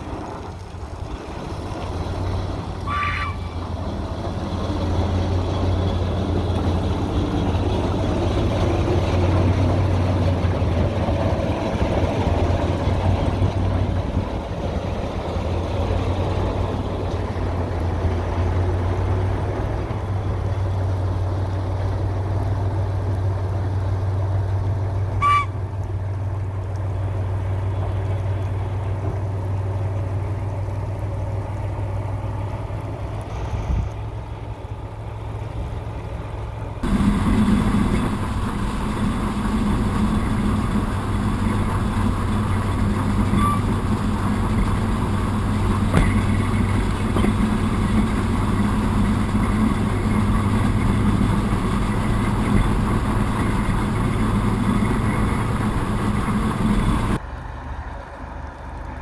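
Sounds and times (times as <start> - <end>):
diesel locomotive engine running: 0.0 - 59.0
high-pitched horn toots: 25.2 - 25.6.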